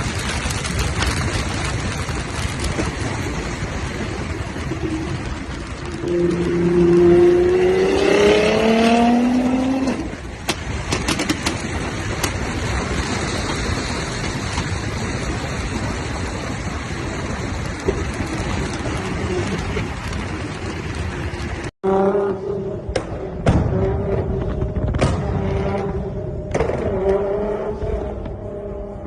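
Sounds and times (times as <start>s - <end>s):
exhaust pops and cracks: 0.0s - 21.7s, 22.9s - 28.5s
steady rushing noise: 0.0s - 29.0s
engine revving: 6.0s - 10.2s, 21.8s - 29.0s.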